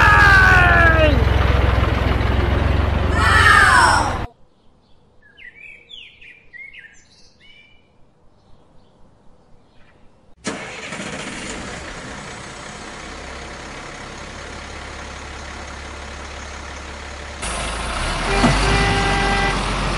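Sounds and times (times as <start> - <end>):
birds chirping: 2.0 - 10.3
horn-like tone: 18.2 - 19.7.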